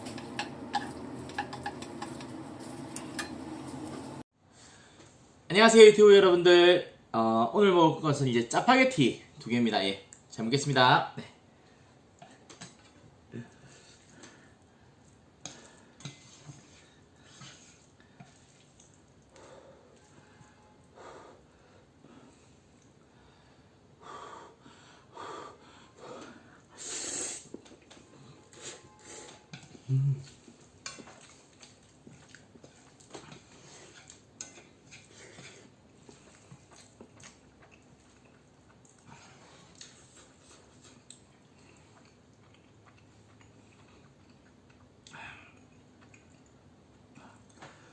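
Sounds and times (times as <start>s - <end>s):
utensils clicking against bowl: 0.0s - 4.0s
soft eating noises: 0.0s - 4.2s, 11.6s - 20.5s, 21.4s - 23.7s, 26.0s - 47.9s
chewing and mouth smacks: 18.3s - 19.3s, 30.6s - 33.4s, 36.0s - 39.1s, 39.7s - 46.6s.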